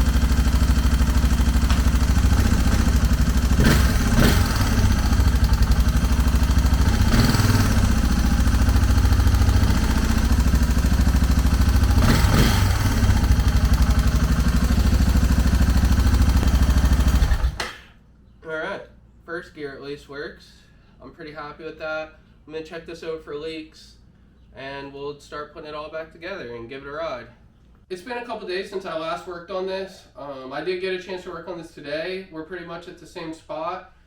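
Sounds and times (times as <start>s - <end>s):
motorcycle engine idling: 0.0s - 17.6s
engine revving surges: 1.6s - 5.7s, 6.6s - 10.9s, 11.6s - 13.8s.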